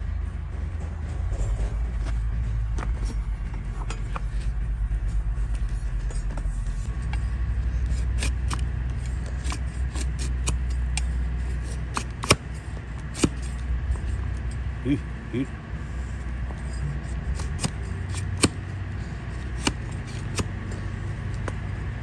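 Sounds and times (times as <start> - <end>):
steady low rumble: 0.0 - 22.0
hoof-trimming tools clicking and snapping: 7.8 - 12.6, 13.2 - 13.6, 17.4 - 18.6, 19.4 - 20.5.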